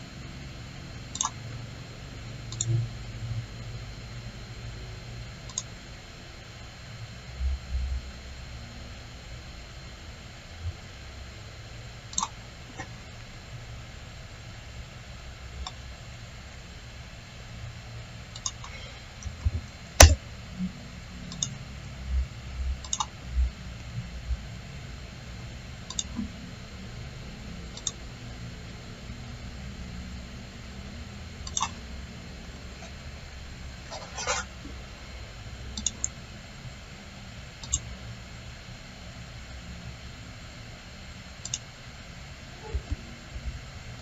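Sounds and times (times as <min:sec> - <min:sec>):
steady low hum: 0:00.0 - 0:44.0
computer mouse clicks: 0:01.1 - 0:01.4, 0:02.5 - 0:02.8, 0:05.5 - 0:05.7, 0:12.1 - 0:12.4, 0:18.4 - 0:18.7, 0:21.3 - 0:21.6, 0:22.8 - 0:23.1, 0:25.9 - 0:26.3, 0:27.7 - 0:28.0, 0:31.4 - 0:31.8, 0:35.8 - 0:36.2, 0:37.6 - 0:37.9, 0:41.4 - 0:41.7.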